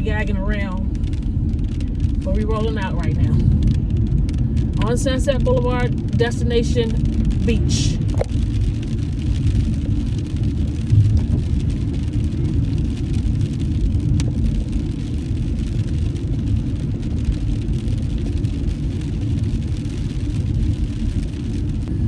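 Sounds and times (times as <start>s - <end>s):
car interior road rumble: 0.0s - 22.0s.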